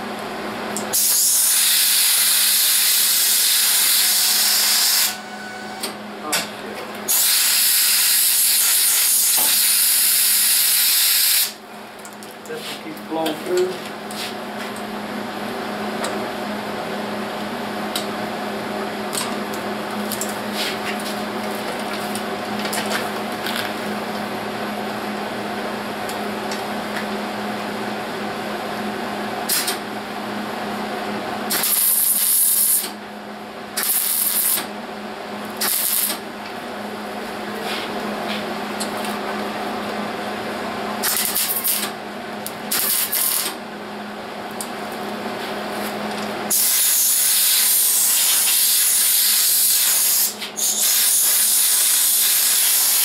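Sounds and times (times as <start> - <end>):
welder crackling buzz: 0.8 - 5.2, 7.1 - 11.6, 31.5 - 33.0, 33.8 - 34.7, 35.4 - 36.2, 41.0 - 43.6, 46.5 - 53.0.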